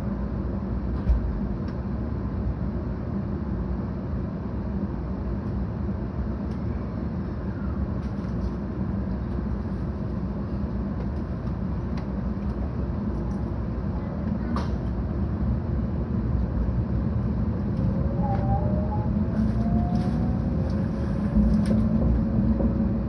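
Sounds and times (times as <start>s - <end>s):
train cabin rumble: 6.4s - 23.0s.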